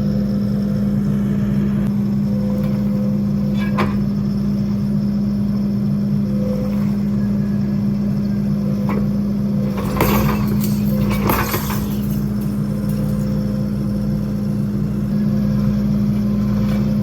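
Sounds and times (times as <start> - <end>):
skid steer engine running: 0.0 - 17.0
rattling clatter: 8.6 - 14.3.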